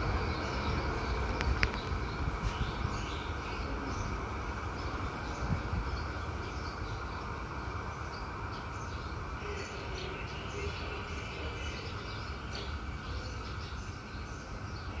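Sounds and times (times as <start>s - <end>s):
birds chirping: 0.0s - 15.0s
distant freight train rumble: 0.0s - 15.0s.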